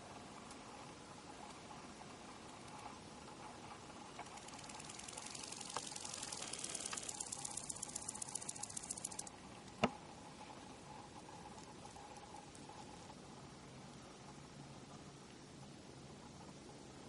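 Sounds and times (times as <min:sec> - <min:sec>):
grasshopper stridulating: 0:01.7 - 0:09.4.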